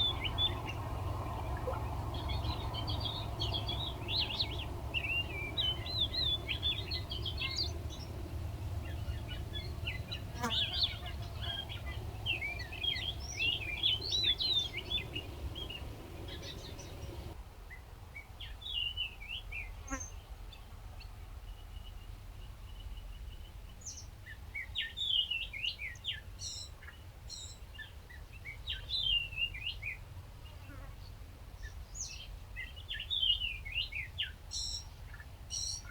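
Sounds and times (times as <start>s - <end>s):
low rumble: 0.0s - 10.2s
songbirds chirping and twittering: 0.0s - 35.9s.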